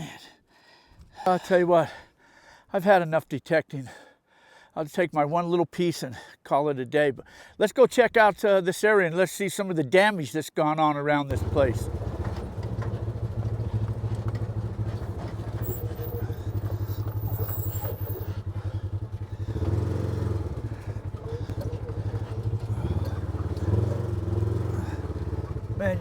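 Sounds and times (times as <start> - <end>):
vehicle engine running: 11.3 - 26.0.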